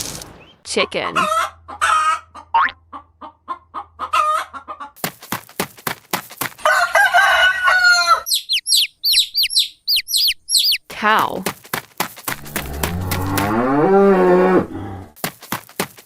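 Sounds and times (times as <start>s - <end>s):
hen clucking: 0.3s - 5.0s, 6.7s - 11.4s
rooster crowing: 6.6s - 8.3s
chicks peeping: 7.7s - 10.9s
wings flapping: 11.4s - 13.6s.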